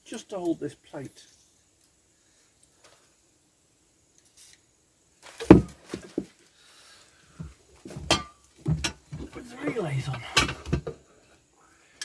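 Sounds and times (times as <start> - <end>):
tools knocking and clunking: 5.4 - 6.3, 7.4 - 11.0.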